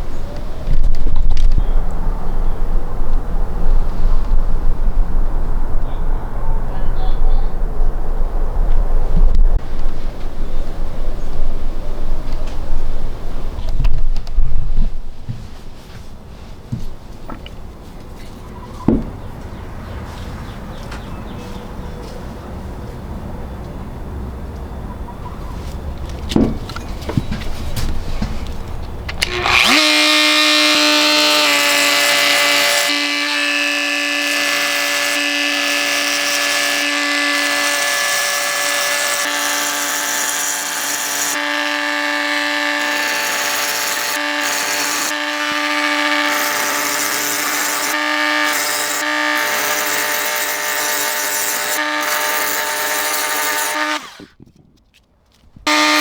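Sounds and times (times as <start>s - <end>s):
power tool motor running: 29.2s - 54.3s, 55.7s - 56.0s.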